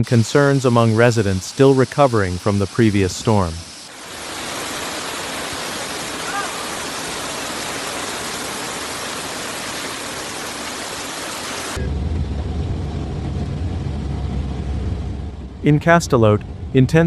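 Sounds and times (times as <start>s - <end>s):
heavy rain hissing: 0.0s - 12.0s
deep steady rumble: 11.8s - 17.0s.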